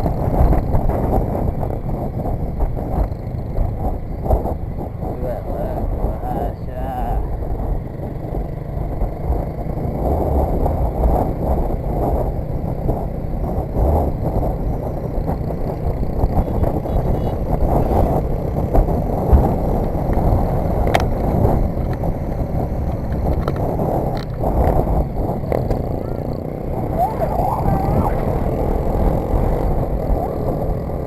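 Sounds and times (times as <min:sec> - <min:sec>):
motorcycle engine running: 0:00.0 - 0:31.0
wind noise on microphone: 0:00.0 - 0:31.0.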